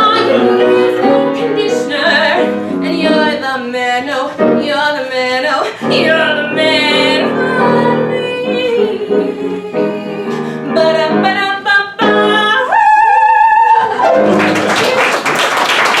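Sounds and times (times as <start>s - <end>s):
woman singing: 0.0s - 14.0s
instrumental accompaniment: 5.8s - 12.6s
applause: 14.0s - 16.0s.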